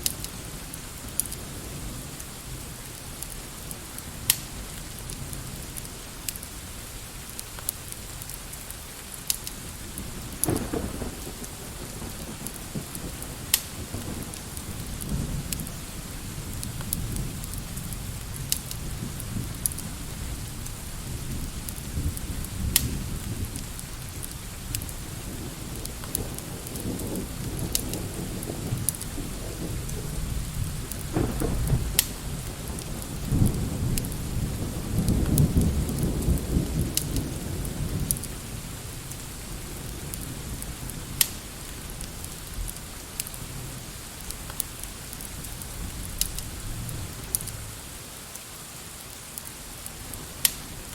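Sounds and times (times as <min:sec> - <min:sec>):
rain falling: 0:00.0 - 0:50.9
wood fire crackling: 0:00.0 - 0:50.9
thunder rolling: 0:09.8 - 0:41.2.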